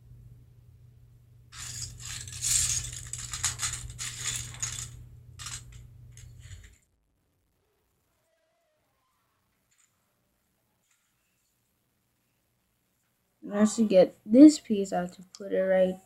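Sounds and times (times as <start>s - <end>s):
plastic pieces clattering: 1.6s - 6.8s.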